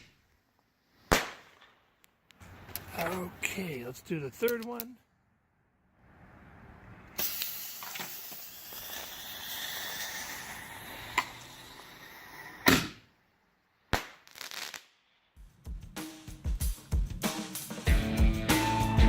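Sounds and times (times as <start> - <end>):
fuse hissing and crackling: 7.2 - 12.8.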